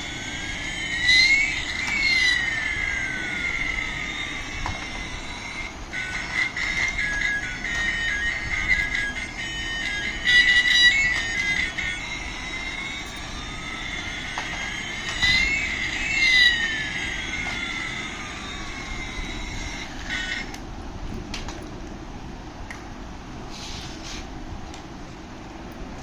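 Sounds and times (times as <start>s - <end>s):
steady beep-like tone: 0.0s - 20.5s
rising and falling electronic tones: 0.0s - 20.6s
hiss: 23.5s - 24.3s.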